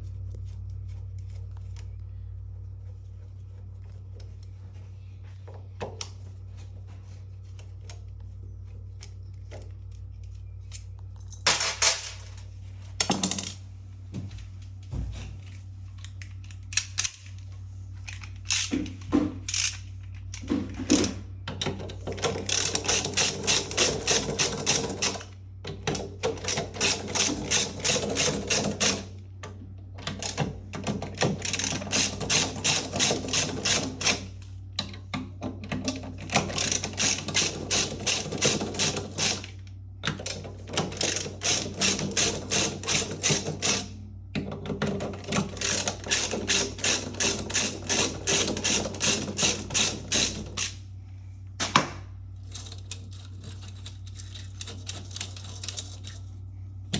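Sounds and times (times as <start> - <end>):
steady low hum: 0.0 - 56.9
ratchet wrench clicking: 22.4 - 25.3, 45.6 - 50.8.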